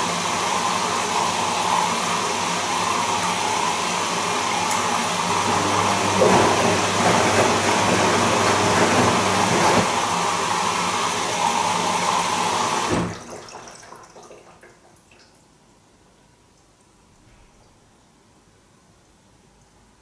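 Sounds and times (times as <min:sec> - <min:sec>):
washing machine running: 0:00.0 - 0:13.9.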